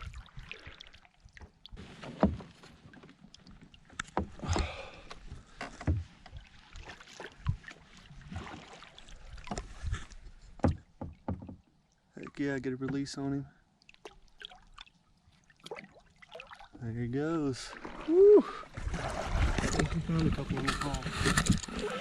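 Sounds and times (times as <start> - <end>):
knocks on plastic kayak hull: 10.6 - 11.6.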